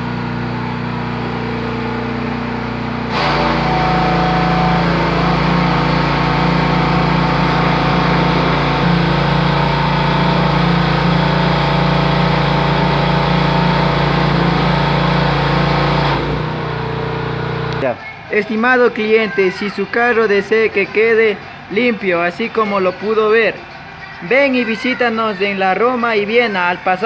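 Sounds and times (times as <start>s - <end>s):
motor humming: 0.0s - 17.9s.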